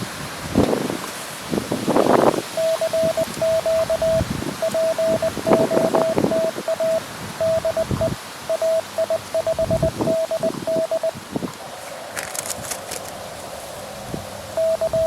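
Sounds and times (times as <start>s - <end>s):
wind buffeting microphone: 0.0s - 15.0s
morse code tone: 2.5s - 11.2s, 14.6s - 15.0s.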